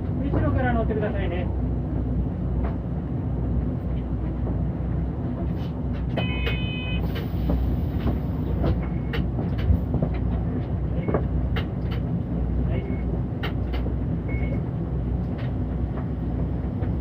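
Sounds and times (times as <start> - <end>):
bus engine and road rumble: 0.0 - 17.0
rattles and clicks: 5.3 - 17.0.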